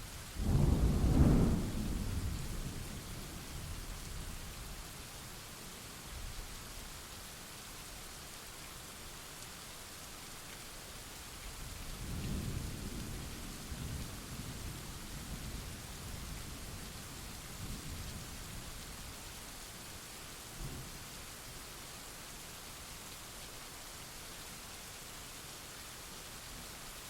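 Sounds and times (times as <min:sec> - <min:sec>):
rain hissing: 0:00.1 - 0:04.7
thunder rumbling: 0:00.4 - 0:03.6.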